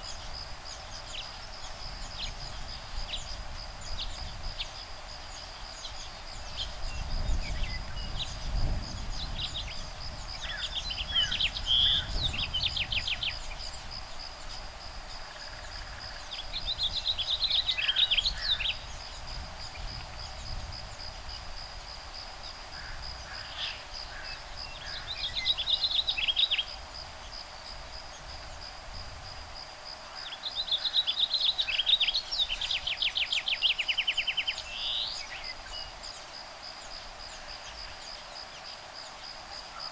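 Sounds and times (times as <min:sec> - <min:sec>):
wind rumble on microphone: 0:00.0 - 0:29.9.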